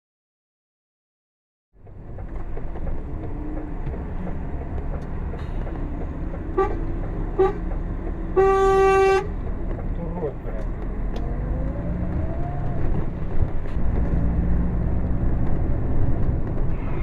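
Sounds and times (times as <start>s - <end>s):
engine rumble: 1.8s - 17.0s
steady traffic: 1.8s - 17.0s
car horn: 6.4s - 9.4s.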